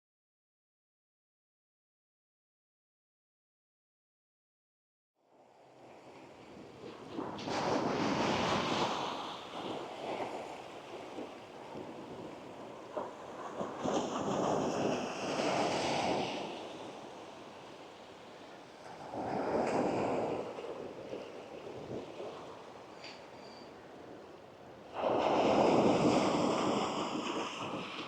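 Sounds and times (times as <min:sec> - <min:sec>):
sea waves washing up a beach: 0:05.9 - 0:28.0.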